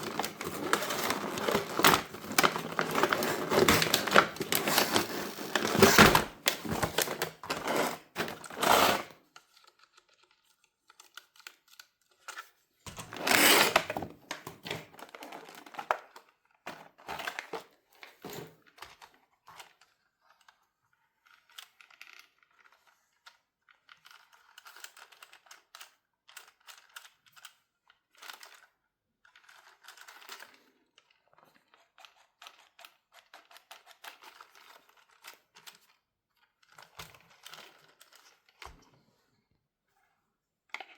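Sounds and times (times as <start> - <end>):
plastic packaging crinkling: 0.0 - 9.1, 12.9 - 18.4.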